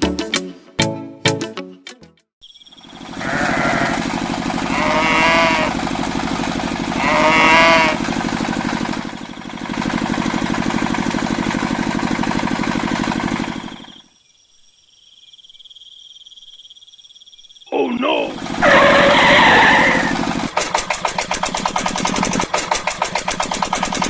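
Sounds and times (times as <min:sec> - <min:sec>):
engine chugging: 0:02.8 - 0:14.0, 0:17.7 - 0:24.0
cattle mooing: 0:03.2 - 0:05.8, 0:07.0 - 0:08.1, 0:17.8 - 0:20.3.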